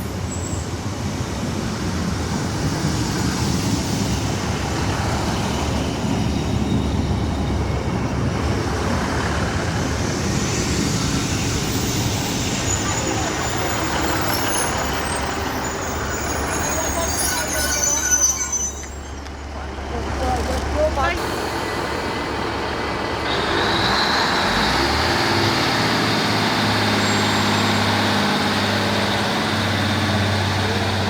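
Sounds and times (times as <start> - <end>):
train rumbling: 0.0 - 31.0
high-pitched squeals: 10.4 - 19.6.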